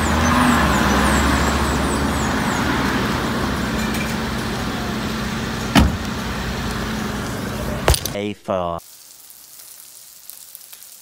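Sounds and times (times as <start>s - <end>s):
car engine idling: 0.0s - 8.2s.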